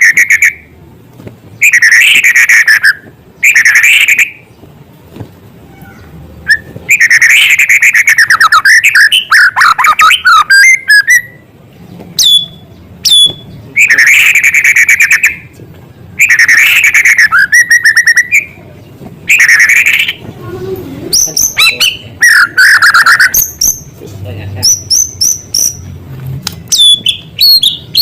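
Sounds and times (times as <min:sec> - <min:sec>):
songbird trilling and whistling: 0:00.0 - 0:00.7, 0:01.6 - 0:04.6, 0:05.9 - 0:11.5, 0:12.2 - 0:15.5, 0:16.2 - 0:18.7, 0:19.3 - 0:20.2, 0:21.1 - 0:24.0, 0:24.6 - 0:25.9, 0:26.7 - 0:28.0.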